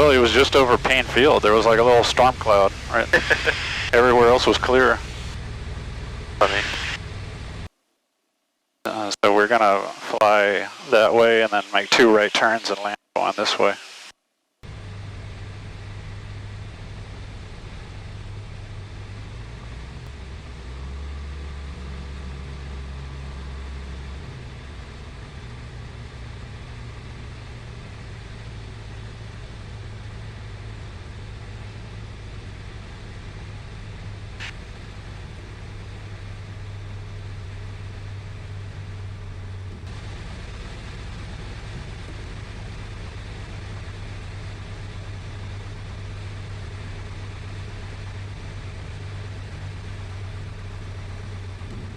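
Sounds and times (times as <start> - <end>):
airflow noise: 0.0 - 7.7, 8.9 - 19.8
propeller plane engine drone: 0.0 - 7.7, 8.9 - 51.9.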